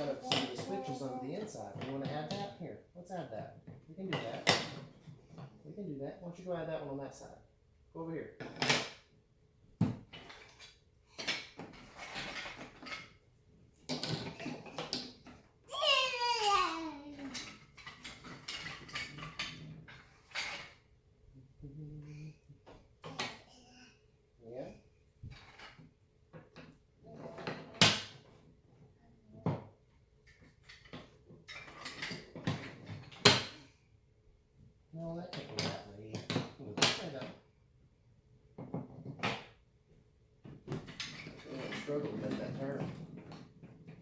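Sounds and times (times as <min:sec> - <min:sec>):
wooden toy track pieces clacking: 0:13.9 - 0:15.4, 0:16.2 - 0:20.8, 0:40.8 - 0:44.0
wooden track pieces clattering: 0:17.2 - 0:20.8.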